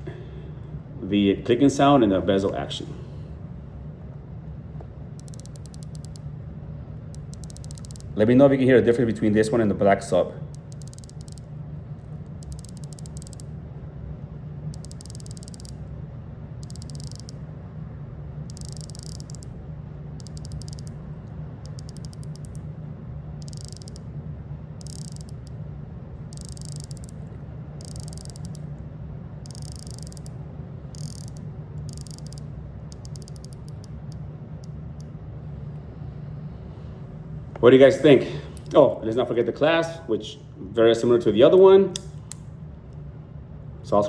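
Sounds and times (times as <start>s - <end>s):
watch bezel ratchet clicking: 5.2s - 6.2s, 7.1s - 8.2s, 10.5s - 11.5s, 12.4s - 13.5s, 14.7s - 15.8s, 16.6s - 17.4s, 18.5s - 19.5s, 20.2s - 21.0s, 21.6s - 22.6s, 23.4s - 24.0s, 24.8s - 25.6s, 26.3s - 27.2s, 27.8s - 28.7s, 29.4s - 35.1s.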